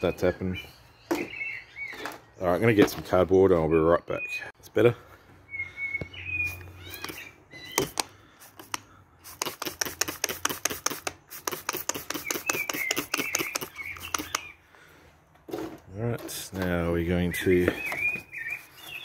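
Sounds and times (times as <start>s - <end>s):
bird chirping: 0.0s - 4.8s, 5.4s - 9.0s, 11.8s - 15.0s, 16.3s - 19.0s
fast sharp clicks: 7.8s - 14.5s.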